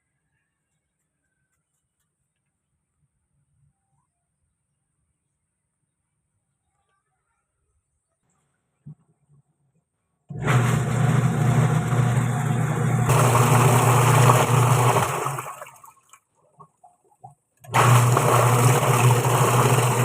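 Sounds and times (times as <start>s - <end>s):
washing machine motor humming: 10.3s - 15.8s, 17.6s - 20.0s.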